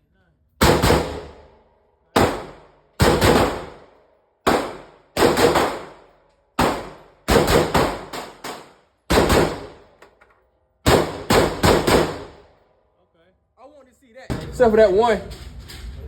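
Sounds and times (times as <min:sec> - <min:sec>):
rifle shots echoing: 0:00.6 - 0:01.6, 0:02.2 - 0:10.0, 0:10.9 - 0:12.6.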